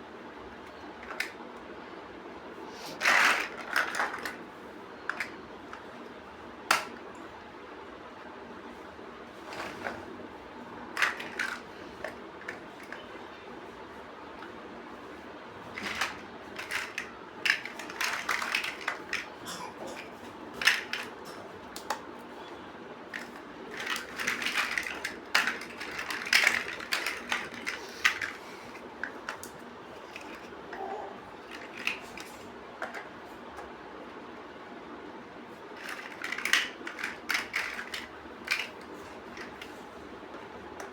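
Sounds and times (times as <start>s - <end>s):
plastic bricks clicking: 15.8s - 19.3s, 23.2s - 30.8s, 35.8s - 39.7s.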